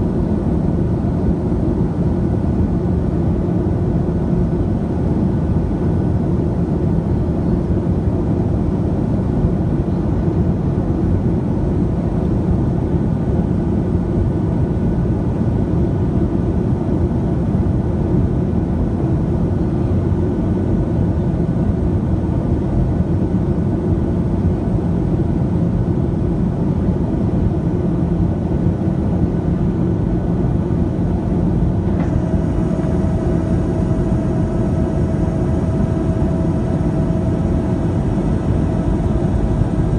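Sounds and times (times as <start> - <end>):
jet engine rumble: 29.1 - 39.9
thin steady whine: 30.1 - 39.9
airflow past fuselage: 30.9 - 39.9.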